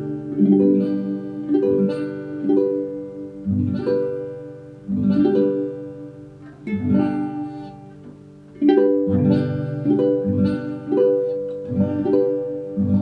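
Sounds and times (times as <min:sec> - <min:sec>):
acoustic guitar strummed chords: 0:00.0 - 0:13.0.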